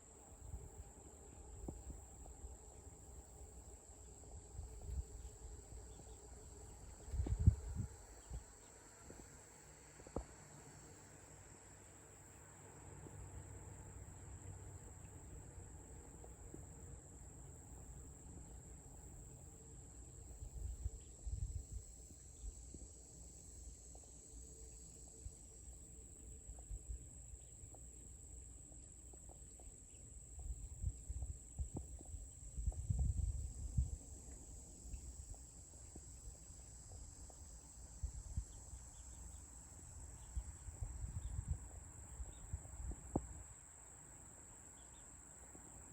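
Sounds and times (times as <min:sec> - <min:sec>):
insects chirring: 0:00.0 - 0:45.9.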